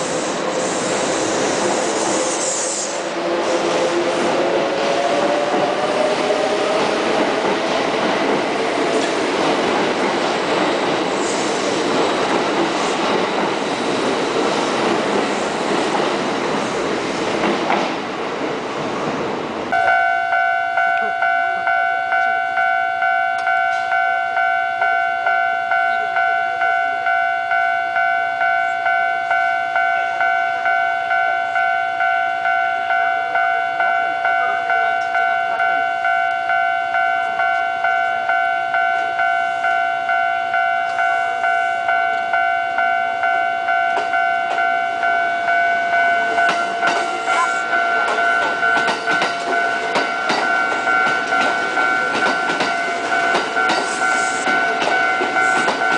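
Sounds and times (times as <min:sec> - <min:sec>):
level crossing alarm bell dinging: 0:19.7 - 0:55.9
train wheels clattering over rail joints: 0:48.0 - 0:55.9.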